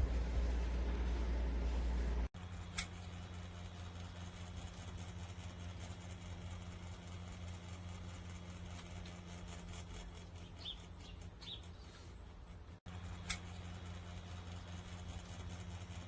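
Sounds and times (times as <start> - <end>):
ceiling fans humming: 0.0 - 16.0
sharp click: 2.7 - 3.0, 13.2 - 13.5.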